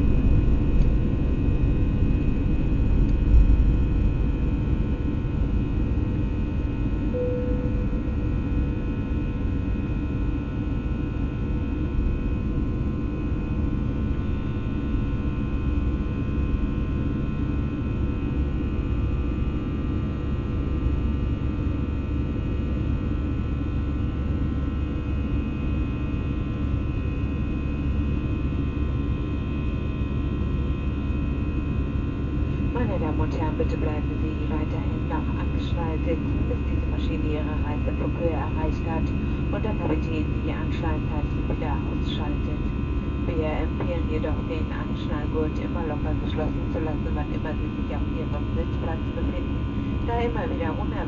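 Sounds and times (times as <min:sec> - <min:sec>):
airplane cabin engine drone: 0:00.0 - 0:51.0
constant tones: 0:07.1 - 0:08.6.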